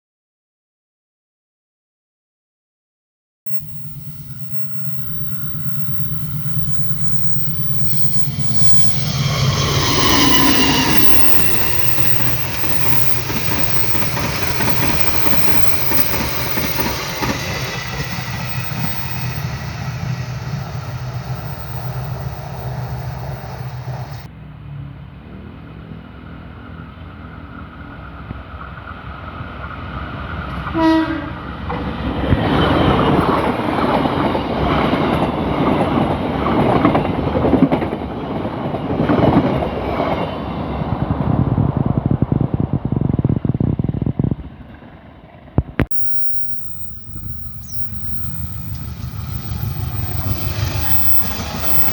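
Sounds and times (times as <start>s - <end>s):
train rumble and rail clatter: 3.5s - 51.9s
train horn: 30.6s - 31.5s.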